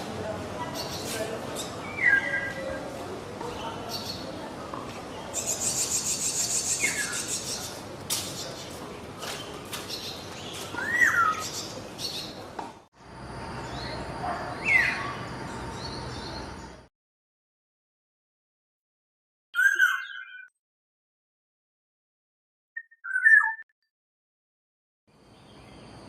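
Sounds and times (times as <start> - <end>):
songbirds chirping: 0.1 - 16.9.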